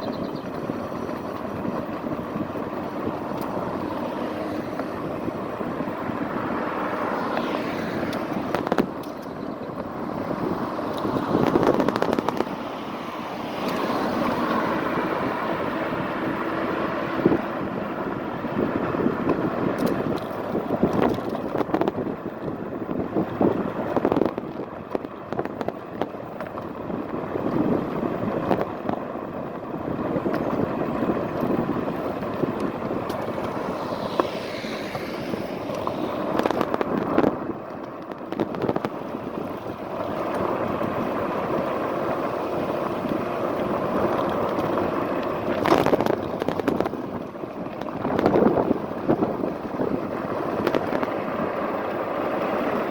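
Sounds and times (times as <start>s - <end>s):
wind and road noise: 0.0s - 52.9s.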